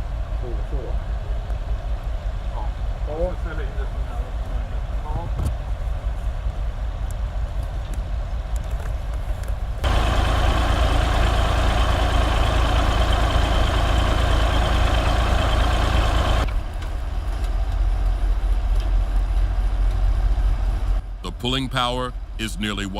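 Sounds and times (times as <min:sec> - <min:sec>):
heavy diesel engines running: 0:08.7 - 0:22.9
loud harsh engine: 0:09.8 - 0:16.5.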